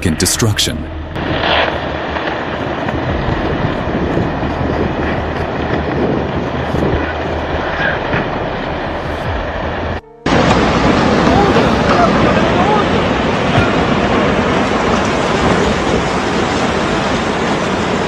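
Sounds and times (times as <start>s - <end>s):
landslide rumbling: 1.2s - 9.9s.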